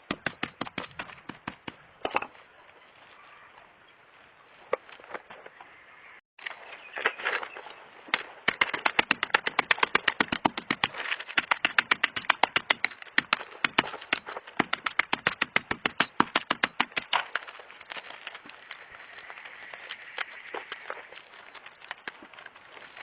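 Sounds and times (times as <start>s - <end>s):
fast sharp knocks: 0.0s - 1.8s, 8.5s - 17.2s.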